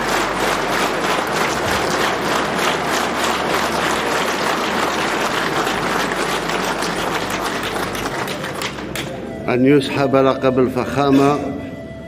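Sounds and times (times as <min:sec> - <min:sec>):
large audience applauding: 0:00.0 - 0:09.2.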